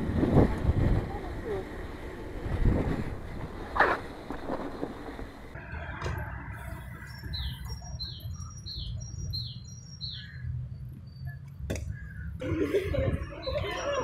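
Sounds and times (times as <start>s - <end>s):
small songbird calling: 7.0s - 12.3s.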